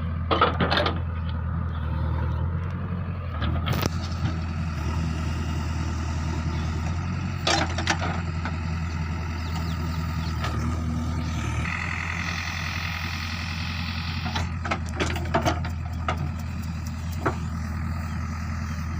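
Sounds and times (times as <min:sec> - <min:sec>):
diesel engine running: 0:00.0 - 0:18.9
high whine: 0:10.2 - 0:14.5.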